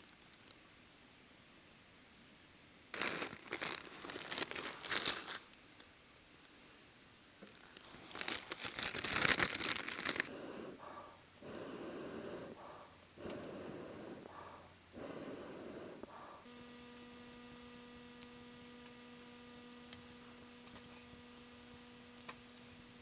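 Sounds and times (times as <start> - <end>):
steady low hum: 7.8 - 23.0.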